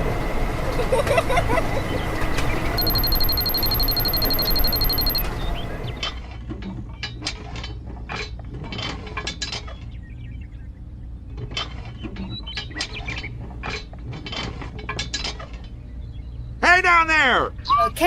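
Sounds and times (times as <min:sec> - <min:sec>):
steady low hum: 0:00.0 - 0:06.1.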